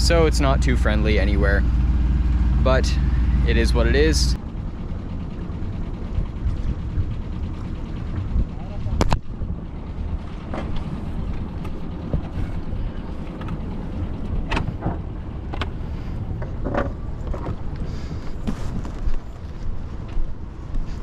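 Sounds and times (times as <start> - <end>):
wind rumbling on microphone: 5.4 - 21.0.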